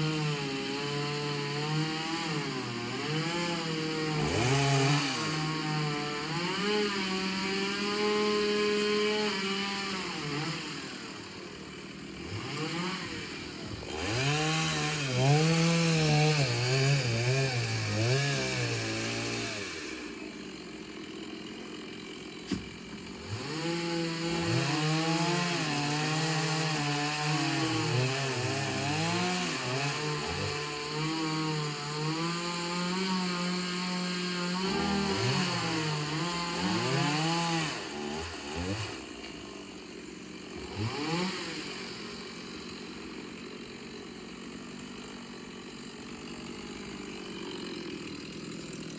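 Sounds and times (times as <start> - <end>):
chainsaw engine revving: 0.0 - 48.9.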